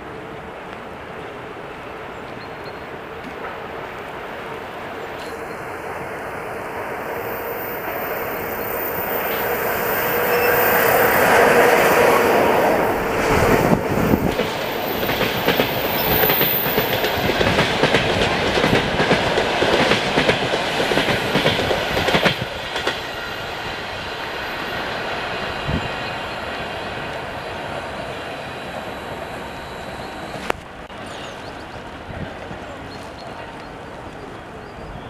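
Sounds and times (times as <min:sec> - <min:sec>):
train passing at speed: 0:00.0 - 0:35.0
wheels clacking over rail joints: 0:11.4 - 0:23.2.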